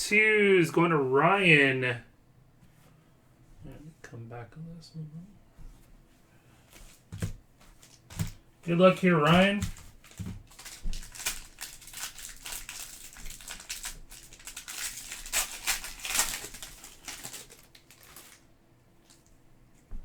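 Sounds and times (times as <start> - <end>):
foil wrapper crinkling and tearing: 7.8 - 19.3.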